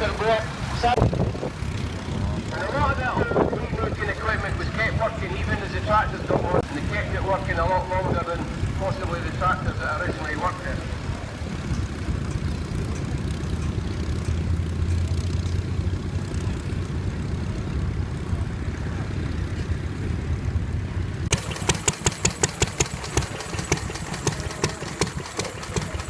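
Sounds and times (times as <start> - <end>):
tractor engine low rumble: 0.0 - 26.0
knocking engine beat: 21.3 - 26.0.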